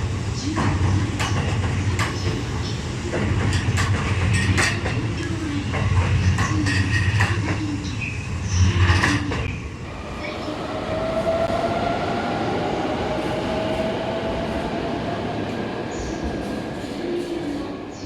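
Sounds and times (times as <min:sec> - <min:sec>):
train rolling noise: 0:00.0 - 0:18.0
train wheels clacking over rail joints: 0:00.6 - 0:05.1.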